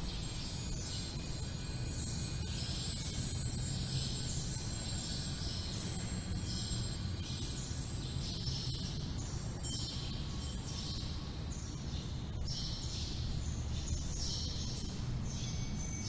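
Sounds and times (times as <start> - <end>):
small bells tinkling: 0.2 - 7.5, 9.6 - 11.0, 15.2 - 16.0.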